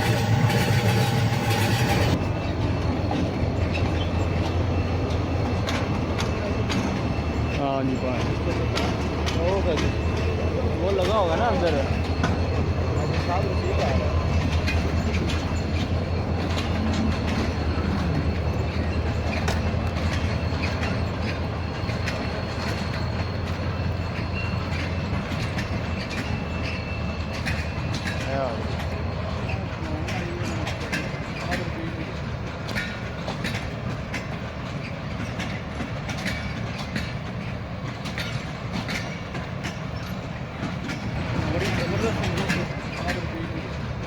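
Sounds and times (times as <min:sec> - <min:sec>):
train rumbling past: 0:00.0 - 0:44.0
wheels clicking over rails: 0:00.0 - 0:44.0.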